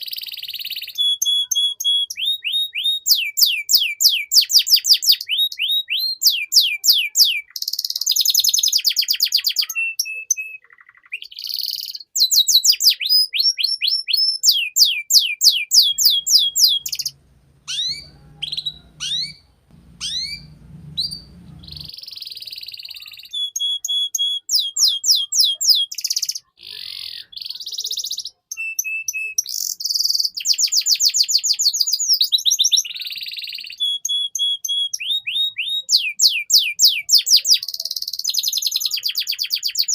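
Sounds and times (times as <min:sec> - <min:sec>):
canary singing trills: 0:14.0 - 0:39.9
faint low rumble: 0:15.9 - 0:21.9.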